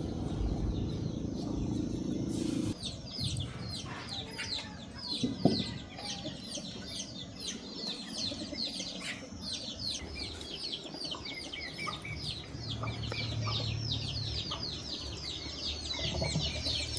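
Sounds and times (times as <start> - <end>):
low steady hum: 0.0 - 5.8
chicks peeping: 0.0 - 16.9.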